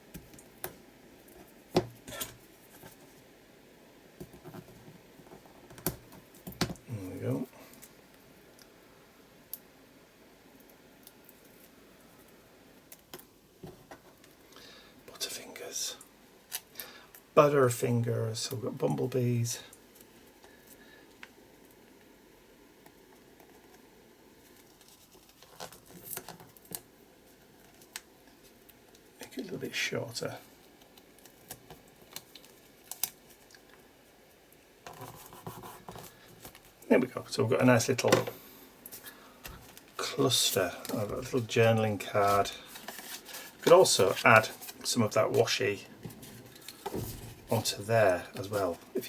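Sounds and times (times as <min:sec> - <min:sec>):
scratchy paper rustle: 0:34.9 - 0:36.7, 0:38.9 - 0:48.8.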